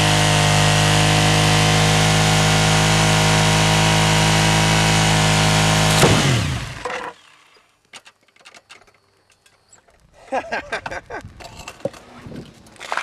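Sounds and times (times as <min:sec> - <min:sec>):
motorcycle engine at high revs: 0:00.0 - 0:07.2
tire spinning on asphalt: 0:00.0 - 0:07.4
tire blowing out with bang: 0:02.7 - 0:06.9.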